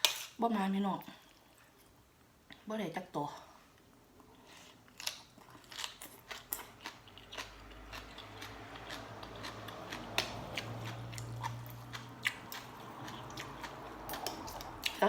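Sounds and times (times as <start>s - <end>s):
chewing clicks and crunches: 4.9s - 15.0s.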